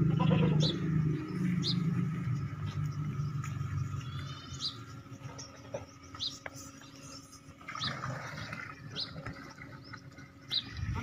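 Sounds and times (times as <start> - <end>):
small bird chirping: 0.2 - 7.9.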